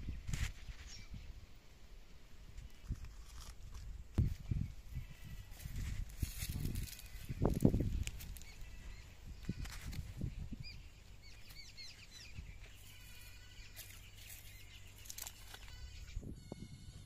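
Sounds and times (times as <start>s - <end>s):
faint outdoor ambience: 0.0s - 17.0s
birds chirping: 6.2s - 16.8s.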